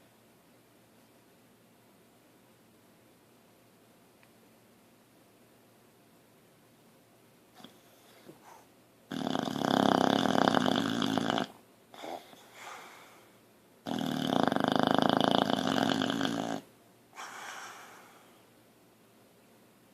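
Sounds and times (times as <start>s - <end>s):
dog snoring: 7.6s - 13.2s, 13.8s - 18.2s.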